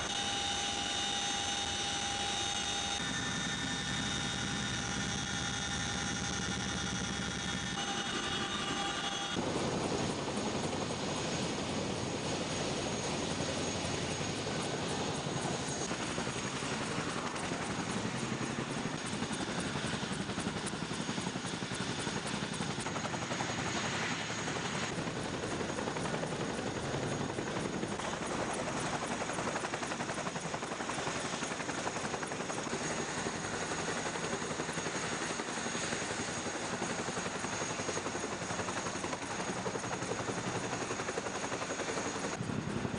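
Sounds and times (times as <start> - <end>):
faint high whine: 0.0 - 42.9
helicopter rotor and turbine noise: 0.0 - 42.9.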